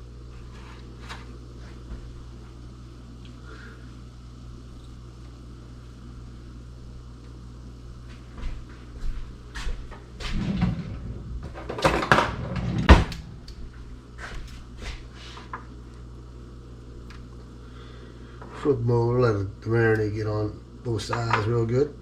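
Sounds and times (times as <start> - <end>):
steady low hum: 0.0 - 22.0
kitchen items knocking and clattering: 10.3 - 13.2.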